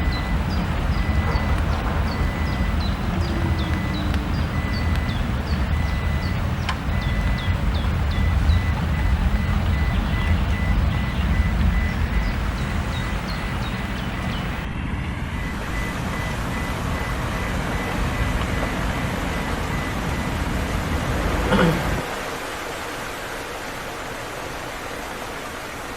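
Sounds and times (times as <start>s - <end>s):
faint steady beeping tone: 0.0s - 21.7s
steady rain falling: 0.0s - 25.9s.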